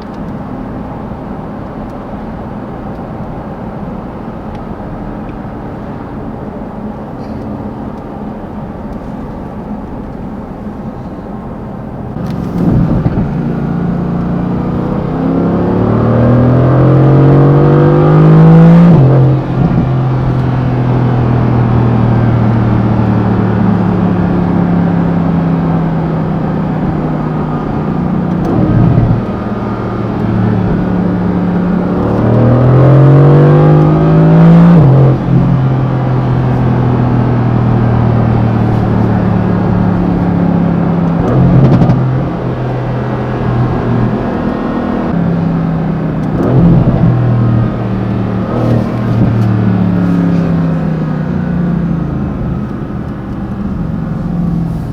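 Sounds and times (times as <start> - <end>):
car engine accelerating: 0.0 - 54.9.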